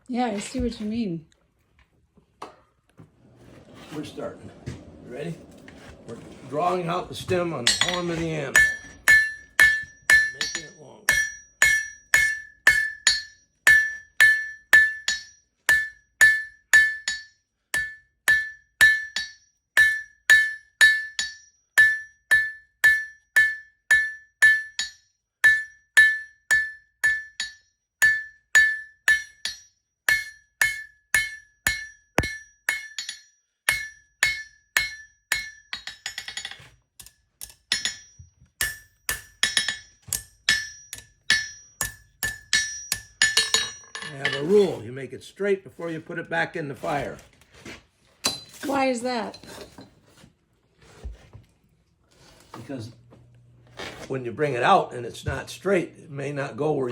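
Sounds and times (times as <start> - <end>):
hammer ringing on anvil: 7.6 - 44.4.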